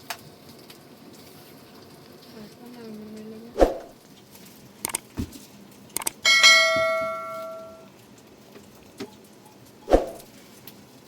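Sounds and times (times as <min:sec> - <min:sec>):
metal object ringing: 0:06.2 - 0:07.9.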